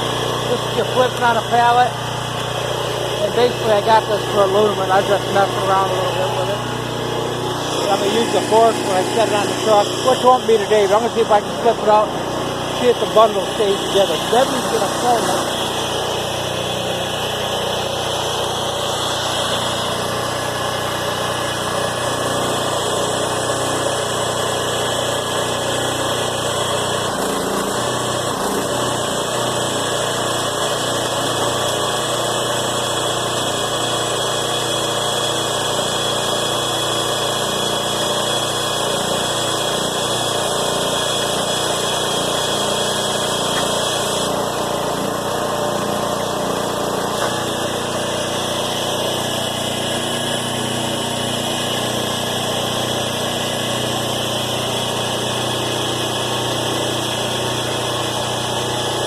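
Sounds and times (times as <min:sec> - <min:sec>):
baler engine humming: 0:00.0 - 0:24.0.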